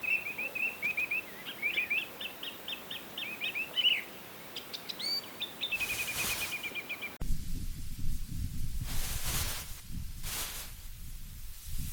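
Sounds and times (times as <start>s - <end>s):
birds chirping: 0.0s - 7.2s.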